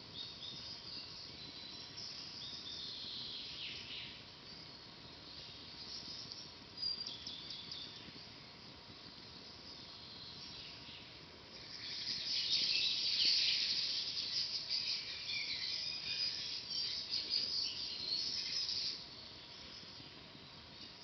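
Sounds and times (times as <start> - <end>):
songbird twittering song: 0.0 - 21.0.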